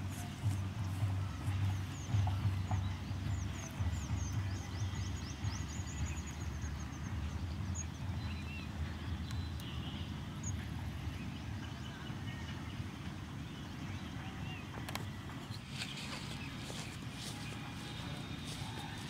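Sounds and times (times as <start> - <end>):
steady low rumble: 0.0 - 12.9.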